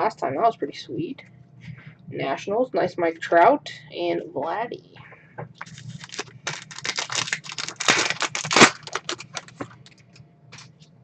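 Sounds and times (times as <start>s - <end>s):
foil pack crinkling and tearing: 5.6s - 10.0s.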